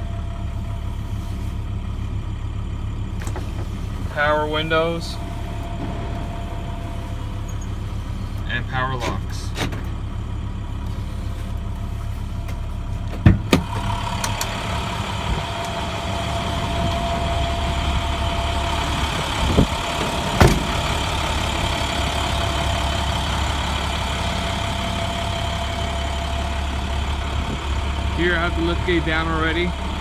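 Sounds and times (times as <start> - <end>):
diesel engine idling: 0.0 - 30.0
steady high whine: 3.2 - 9.0, 13.7 - 29.7
sharp engine knocks: 5.2 - 10.0, 12.4 - 14.6, 18.6 - 23.0.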